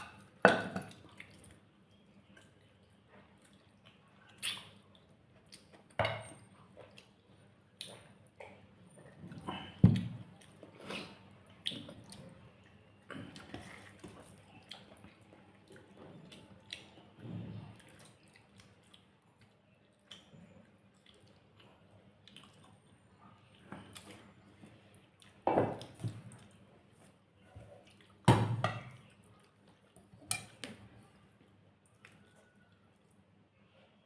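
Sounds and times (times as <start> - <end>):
wet chewing: 17.7 - 24.4.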